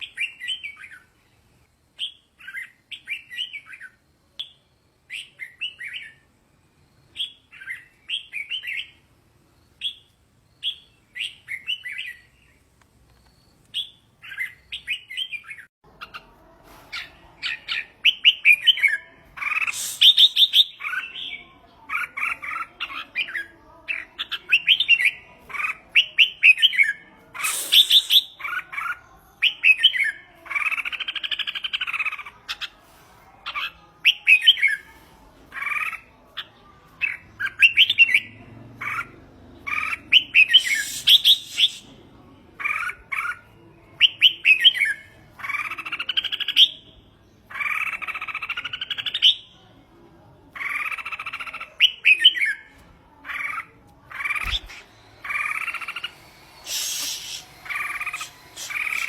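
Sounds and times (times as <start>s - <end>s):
bird singing warbled phrases: 0.0s - 1.2s, 2.0s - 6.3s, 7.1s - 9.0s, 9.8s - 12.6s, 13.7s - 16.3s, 17.0s - 32.8s, 35.5s - 41.9s, 50.5s - 59.0s
brief crackles: 40.6s - 41.9s, 56.6s - 59.0s.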